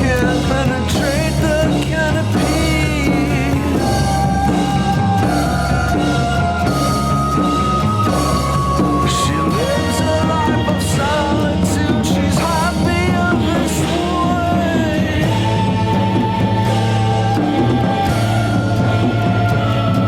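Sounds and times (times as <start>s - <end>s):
drum kit beat: 0.0s - 20.0s
psychedelic rock song: 0.0s - 20.0s.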